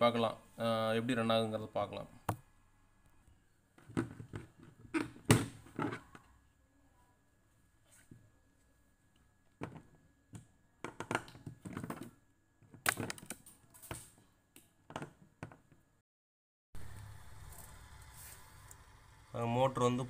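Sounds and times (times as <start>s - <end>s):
steady low hum: 16.8s - 20.0s.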